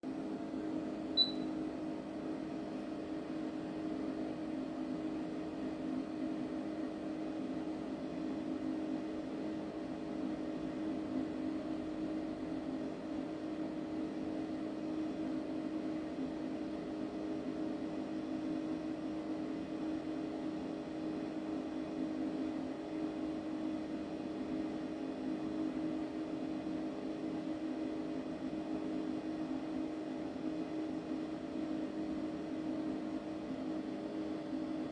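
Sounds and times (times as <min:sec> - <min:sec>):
short click: 0:01.2 - 0:01.5.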